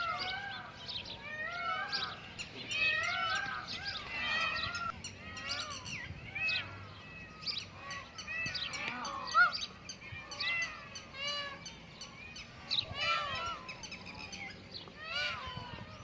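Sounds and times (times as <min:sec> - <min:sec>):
many birds chirping: 0:00.0 - 0:16.0.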